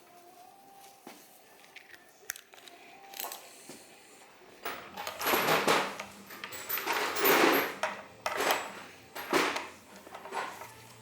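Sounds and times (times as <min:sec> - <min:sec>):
metal hand tools clinking: 0:04.6 - 0:11.0.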